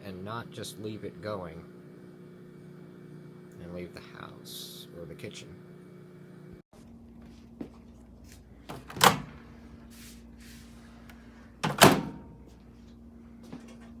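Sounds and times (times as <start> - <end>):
microwave door clunking: 8.7 - 9.4, 11.6 - 12.4
latch click: 11.6 - 12.2.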